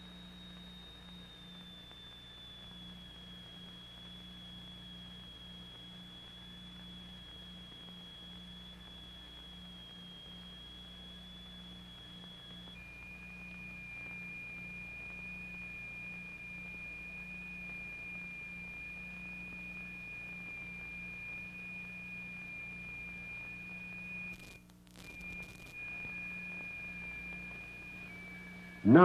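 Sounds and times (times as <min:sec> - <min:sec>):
high pure tone: 0:00.0 - 0:29.0
low mains hum: 0:00.0 - 0:29.0.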